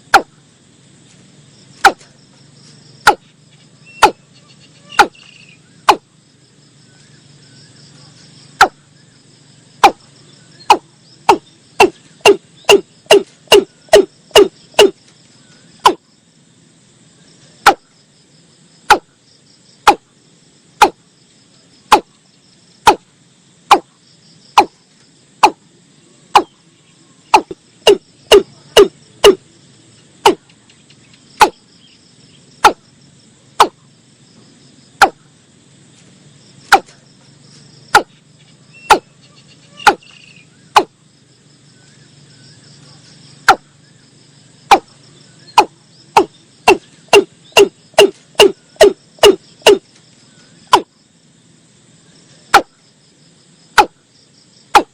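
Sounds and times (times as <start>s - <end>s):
insects trilling: 0.0s - 54.9s
bird calling sharp hollow notes: 3.0s - 6.1s, 8.5s - 9.0s, 10.6s - 15.0s, 15.8s - 16.0s, 26.3s - 26.6s, 27.3s - 29.4s, 35.0s - 35.2s, 37.9s - 38.2s, 38.8s - 39.1s, 39.7s - 40.9s, 45.5s - 49.9s.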